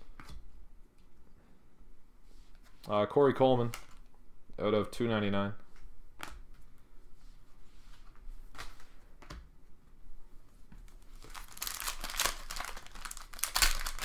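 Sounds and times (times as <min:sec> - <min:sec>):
foil wrapper crinkling and tearing: 0:11.0 - 0:14.0.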